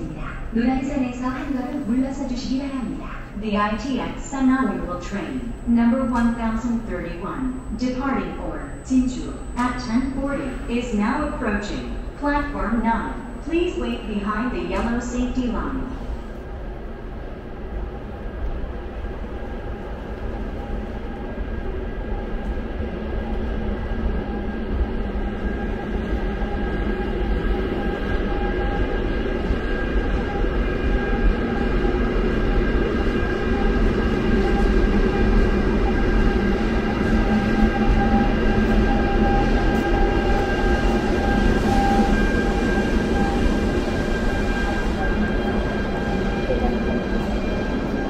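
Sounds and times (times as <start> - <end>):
electric train running: 16.0 - 48.0.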